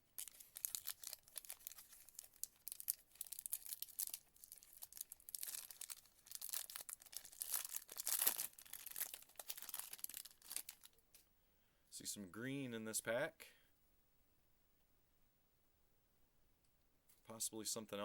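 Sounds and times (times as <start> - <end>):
wrapper tearing and crinkling: 0.2 - 11.0.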